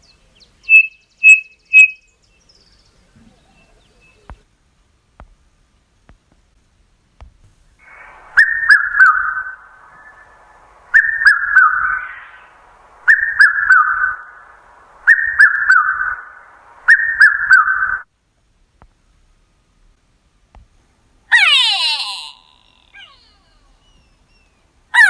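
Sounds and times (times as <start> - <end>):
bird whistling descending notes: 0.6 - 2.0, 7.8 - 18.1.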